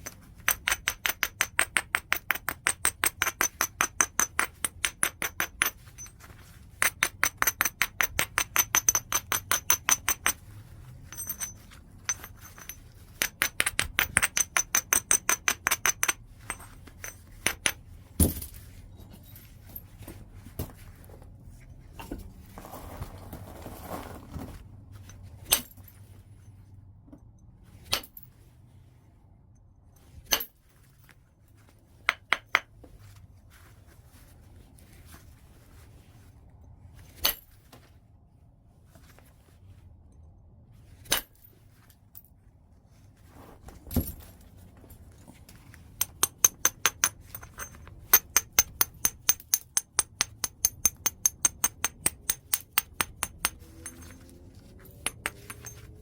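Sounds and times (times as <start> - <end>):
rapid light taps on stone: 0.0 - 5.8, 6.8 - 10.4, 12.1 - 17.8, 32.1 - 32.7, 46.0 - 53.9
high ringing clink: 11.0 - 13.4.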